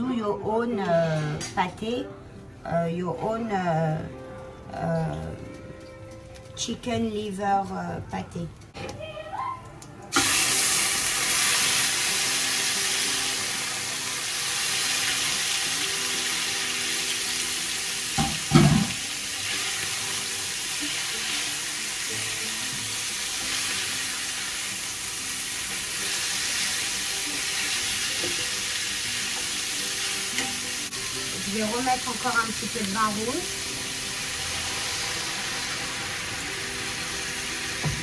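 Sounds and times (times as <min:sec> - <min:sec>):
livers sizzling in hot oil: 0:10.1 - 0:38.0.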